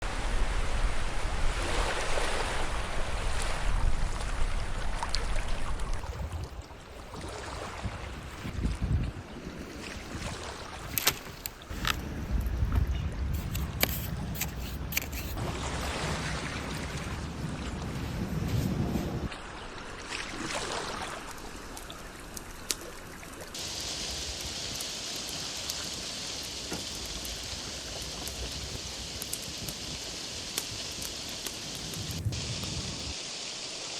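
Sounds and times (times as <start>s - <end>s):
surf washing onto beach: 0.0s - 8.6s, 13.2s - 21.8s, 23.6s - 33.9s
wind rumbling on microphone: 0.0s - 19.6s, 23.6s - 33.4s
water trickling: 19.5s - 33.8s
rain falling: 22.3s - 33.9s.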